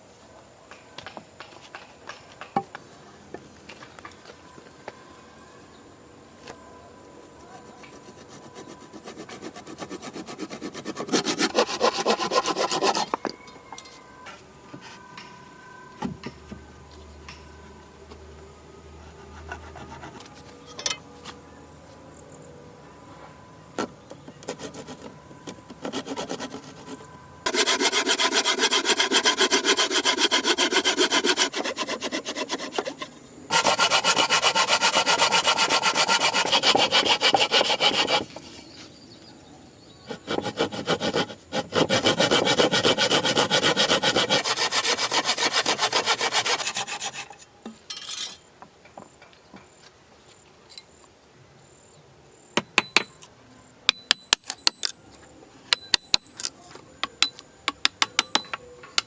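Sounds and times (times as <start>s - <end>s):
hand saw cutting wood: 7.8s - 13.1s, 25.8s - 26.9s, 27.5s - 38.6s, 40.1s - 47.3s.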